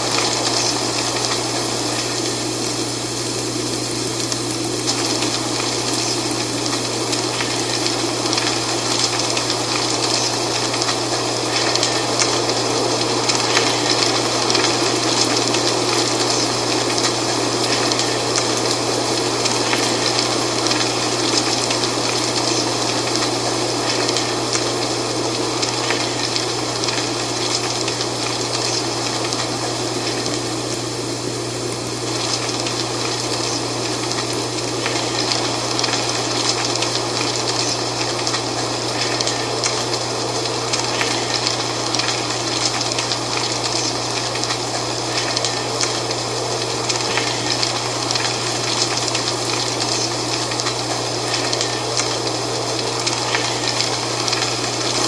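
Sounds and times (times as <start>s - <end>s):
wind rustling dry leaves: 0.0s - 55.0s.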